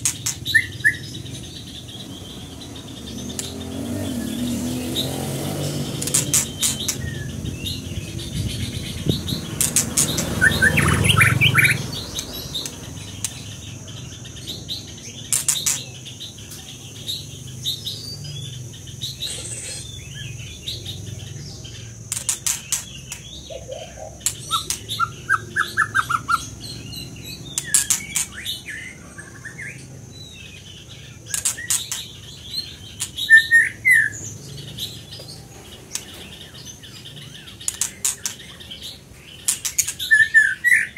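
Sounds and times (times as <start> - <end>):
sharp clicks and flutters: 0.0 - 0.6, 5.6 - 7.8, 8.6 - 13.7, 15.3 - 16.0, 22.1 - 23.4, 24.2 - 25.0, 27.6 - 28.5, 31.3 - 32.2, 37.6 - 38.6, 39.4 - 40.1
songbird chirping and trilling: 0.0 - 40.9.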